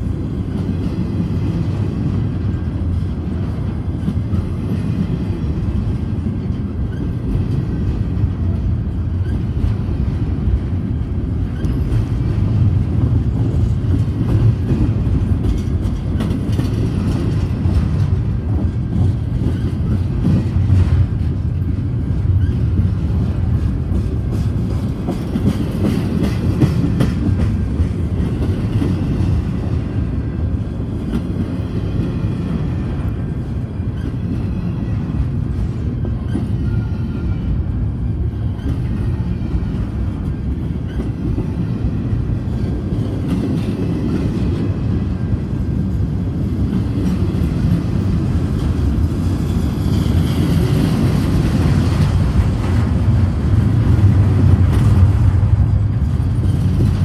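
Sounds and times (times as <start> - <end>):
wheels clicking over rail joints: 0.0 - 37.6
train wheels rumbling on rail: 0.0 - 57.0.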